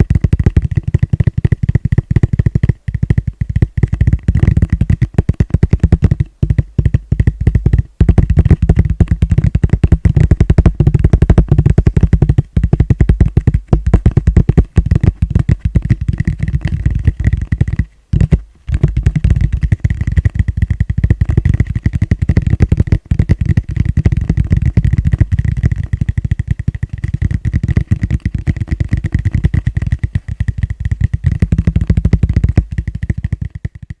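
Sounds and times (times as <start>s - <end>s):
fingertips tapping on plastic bowl: 0.0s - 34.0s.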